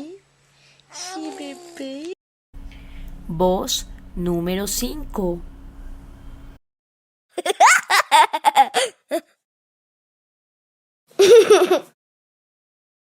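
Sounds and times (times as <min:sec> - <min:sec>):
small child laughing: 0:07.4 - 0:09.4, 0:11.2 - 0:12.0.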